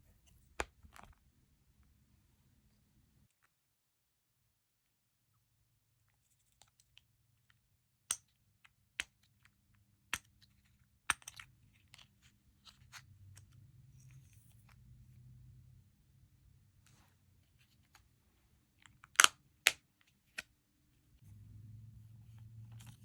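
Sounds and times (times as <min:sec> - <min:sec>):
faint low hum: 0:12.0 - 0:18.8, 0:20.1 - 0:23.0.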